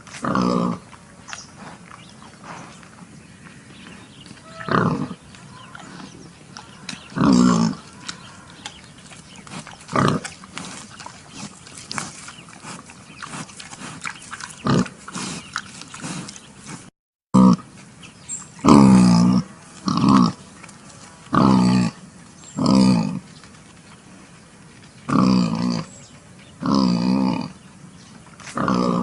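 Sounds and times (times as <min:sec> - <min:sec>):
pigs calling: 0:03.9 - 0:17.7, 0:18.6 - 0:22.0, 0:28.5 - 0:29.0.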